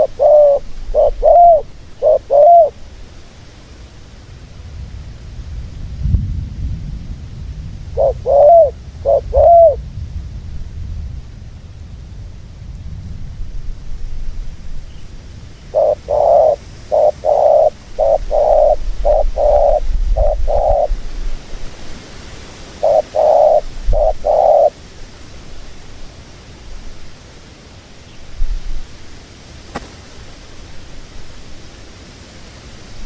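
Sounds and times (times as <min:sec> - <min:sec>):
dove cooing: 0:00.0 - 0:02.9, 0:08.0 - 0:09.8, 0:15.7 - 0:21.1, 0:22.8 - 0:24.8
low rumble: 0:04.3 - 0:15.8.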